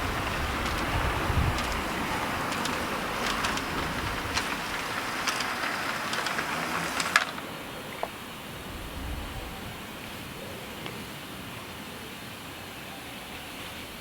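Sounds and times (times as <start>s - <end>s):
model train rolling hiss: 0.0s - 8.3s
wheels clicking over rail joints: 0.0s - 8.6s.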